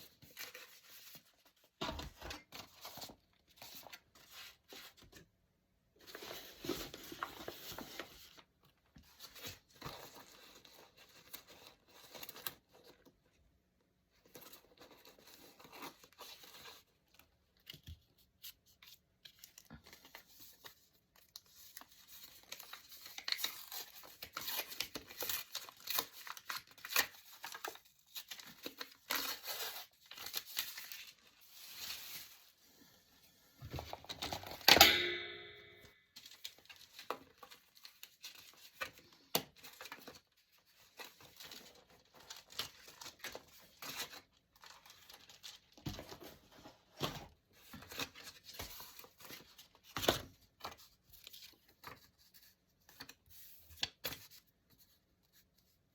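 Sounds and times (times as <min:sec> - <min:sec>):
sharp clink: 0:34.8 - 0:35.9.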